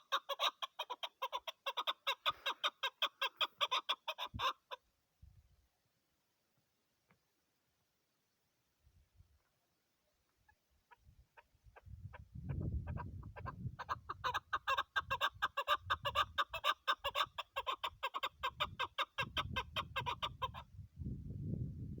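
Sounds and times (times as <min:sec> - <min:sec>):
partridge clucking calls: 0:00.0 - 0:04.8, 0:10.9 - 0:20.6.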